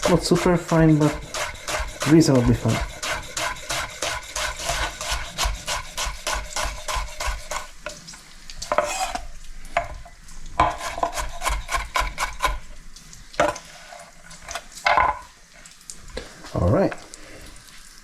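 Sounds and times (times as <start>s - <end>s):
knife chopping on cutting board: 0.0s - 7.7s.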